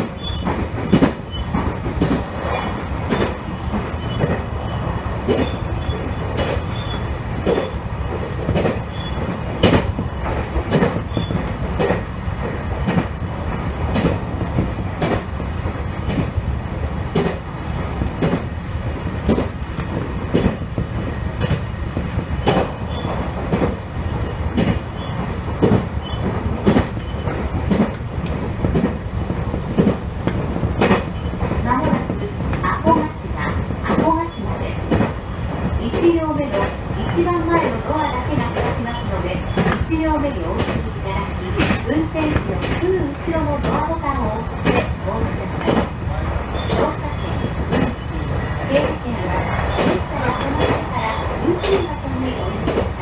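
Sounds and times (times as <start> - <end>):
wheels clacking over rail joints: 0.0 - 4.5, 19.2 - 53.0
train running rumble: 0.0 - 53.0.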